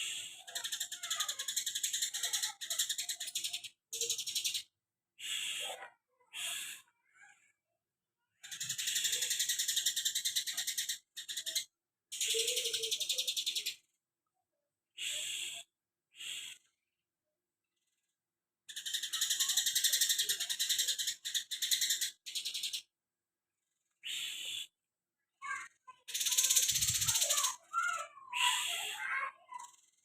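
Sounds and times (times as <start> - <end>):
songbird fast high chattering: 0.0 - 5.7, 8.4 - 13.8, 18.7 - 22.9, 25.4 - 29.8.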